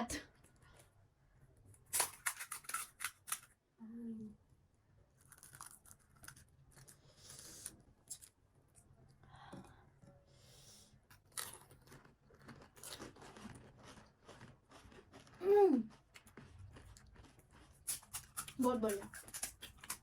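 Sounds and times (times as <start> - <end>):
crunchy food being chewed: 1.7 - 3.5, 5.2 - 8.8, 11.1 - 20.0.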